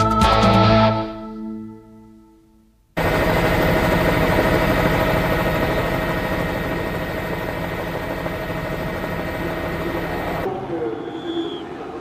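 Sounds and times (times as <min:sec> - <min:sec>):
racing car engines running: 0:03.0 - 0:12.0.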